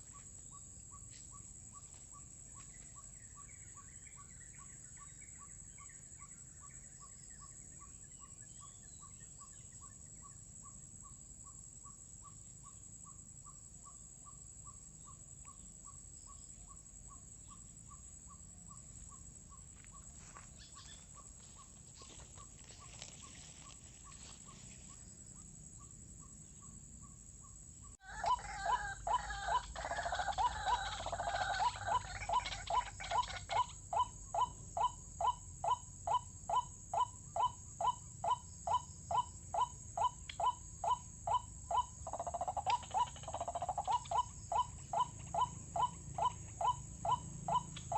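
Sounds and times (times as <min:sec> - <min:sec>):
waterhen calling: 0:28.0 - 0:33.8
harsh bird calls: 0:28.0 - 0:47.9.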